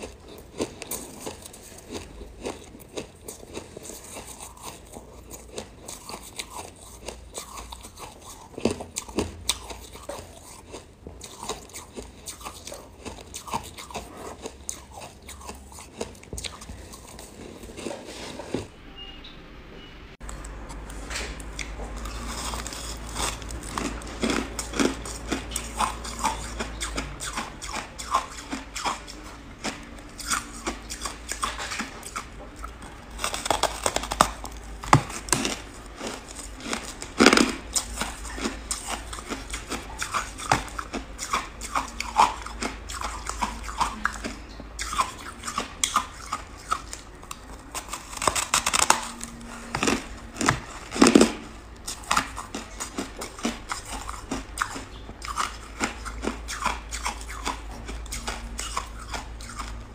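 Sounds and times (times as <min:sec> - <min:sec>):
crunchy chewing: 0:00.0 - 0:18.7, 0:20.2 - 0:59.9.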